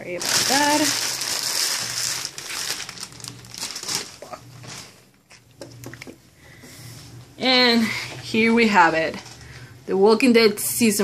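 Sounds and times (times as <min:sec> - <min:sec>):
packaging crinkling: 0:00.0 - 0:05.5.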